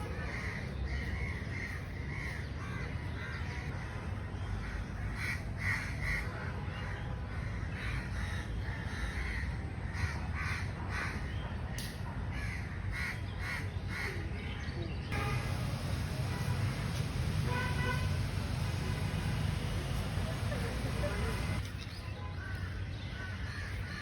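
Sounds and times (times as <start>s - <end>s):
birds calling: 7.4s - 24.0s.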